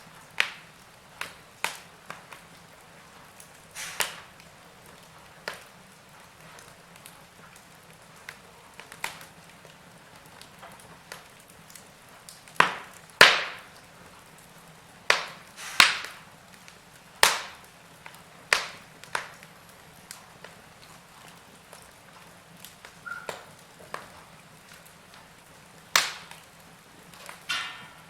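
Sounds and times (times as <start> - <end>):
faint steady hiss: 0.0 - 28.0
wood fire crackling: 0.0 - 28.0
loud sharp pops and snaps: 0.3 - 2.6, 3.4 - 5.7, 8.2 - 9.4, 10.4 - 13.9, 15.1 - 20.9, 25.9 - 28.0.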